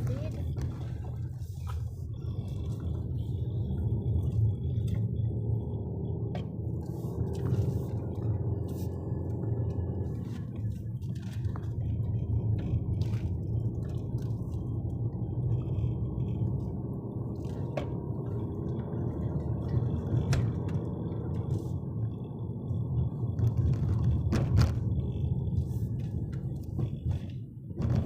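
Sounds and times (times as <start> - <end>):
car road and engine rumble: 0.0 - 28.0.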